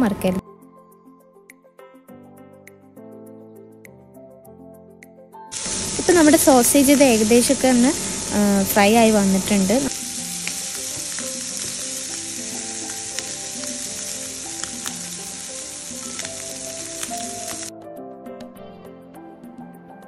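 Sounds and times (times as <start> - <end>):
soft background music: 0.0 - 20.0
sausage sizzling in oil: 5.5 - 17.7.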